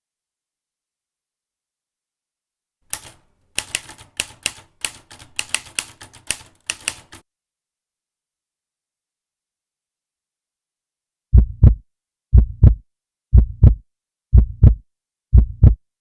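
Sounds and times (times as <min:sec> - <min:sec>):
typewriter keys clacking: 0:02.9 - 0:07.2.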